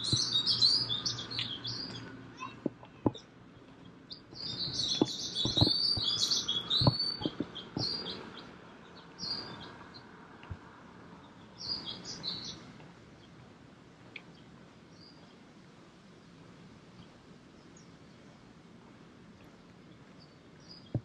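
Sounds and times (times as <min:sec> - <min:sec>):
small birds twittering: 0:00.0 - 0:21.0
sharp knocks: 0:04.7 - 0:06.2, 0:06.8 - 0:08.1.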